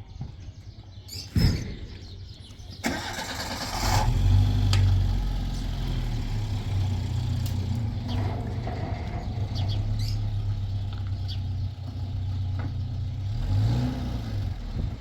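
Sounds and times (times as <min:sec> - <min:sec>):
thump: 0:01.3 - 0:02.0
engine cranking and idling: 0:02.7 - 0:13.2.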